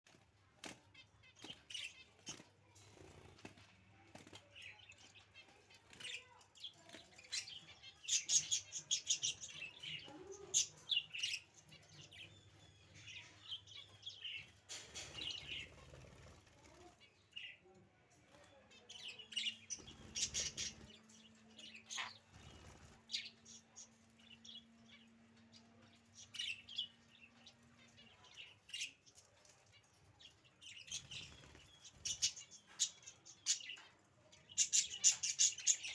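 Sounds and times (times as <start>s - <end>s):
budgerigars chirping: 19.4s - 20.9s.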